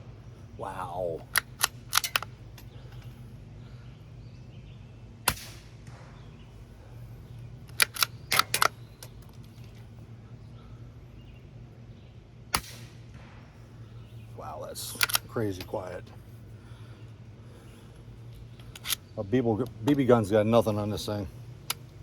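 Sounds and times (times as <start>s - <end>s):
rifle bolt clicking: 1.2s - 3.1s, 7.6s - 9.8s, 14.9s - 15.7s, 18.6s - 19.8s
suppressed rifle shot: 5.2s - 9.2s, 12.5s - 14.1s.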